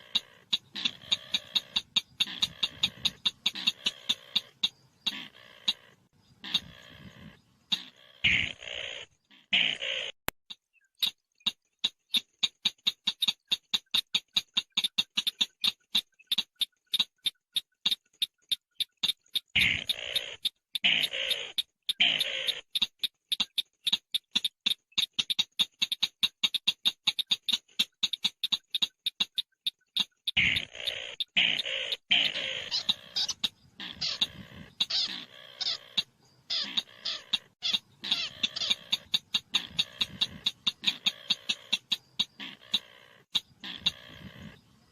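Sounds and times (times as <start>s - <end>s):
bird calling sharp ticking notes: 0.0s - 44.9s.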